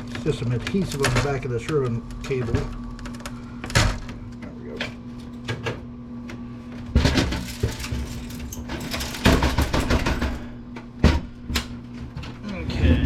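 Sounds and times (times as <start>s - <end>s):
knocks and rattles of parts: 6.8s - 13.0s.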